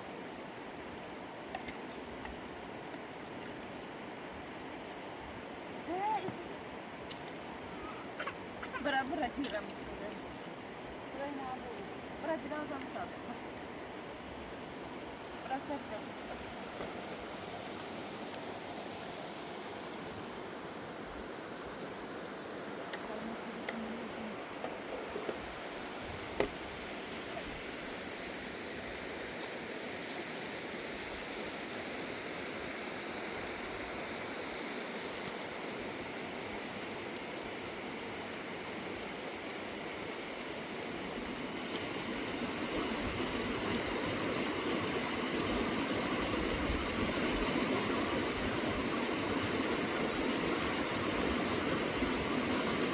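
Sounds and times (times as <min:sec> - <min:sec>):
cricket chirping: 0:00.0 - 0:52.9
river rushing: 0:24.3 - 0:52.9.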